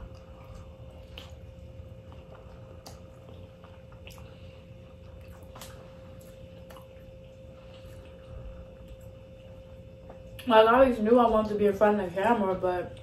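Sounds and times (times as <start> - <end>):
wet chewing: 0.0 - 10.6
faint hum: 0.0 - 13.0.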